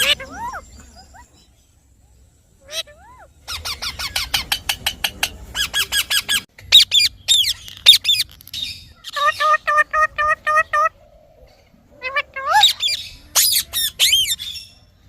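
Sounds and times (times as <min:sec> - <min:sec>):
parakeet shrill calls: 0:00.0 - 0:01.3, 0:05.6 - 0:09.8, 0:12.4 - 0:14.7.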